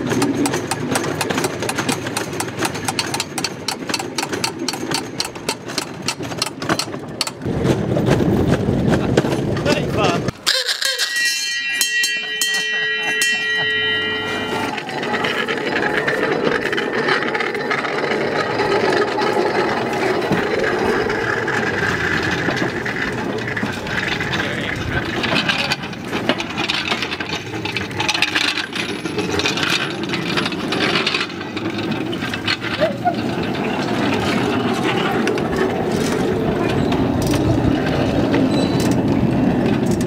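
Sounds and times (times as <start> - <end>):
rail bike rattling on track: 0.0 - 40.0
chord of high tones: 10.5 - 15.2.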